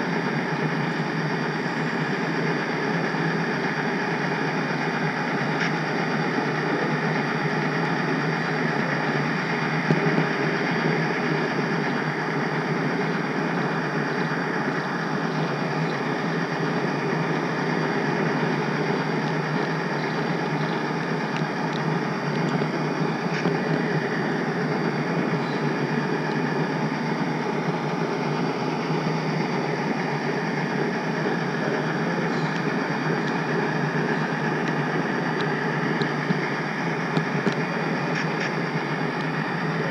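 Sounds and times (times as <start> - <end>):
faint ticks at rail joints: 21.3 - 23.8, 37.1 - 39.4.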